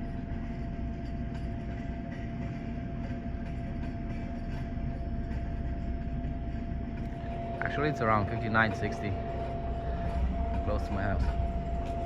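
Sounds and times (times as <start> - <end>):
drilling rig rumbling and whining: 5.2 - 12.0.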